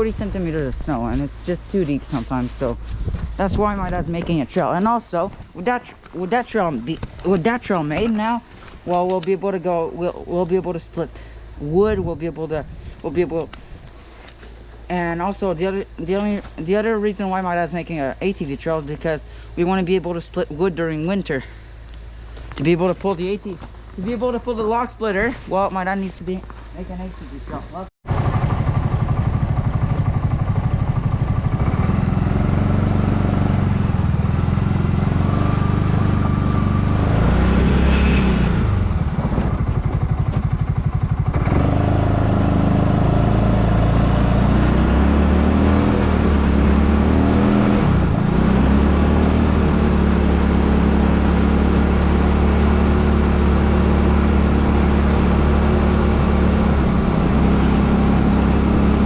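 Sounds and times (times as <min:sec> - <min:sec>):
small vehicle engine running loudly: 0:28.1 - 0:59.0.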